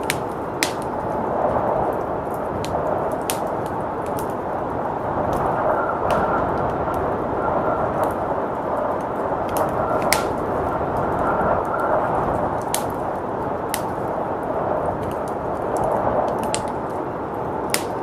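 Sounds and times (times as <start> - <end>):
blizzard wind whistling: 0.0 - 18.0
wood fire crackling and popping: 0.0 - 18.0.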